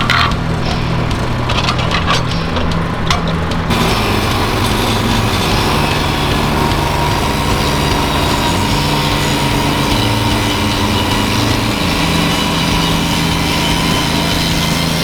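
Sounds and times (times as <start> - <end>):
small gasoline engine running: 0.0 - 15.0
loud hiss: 3.7 - 15.0.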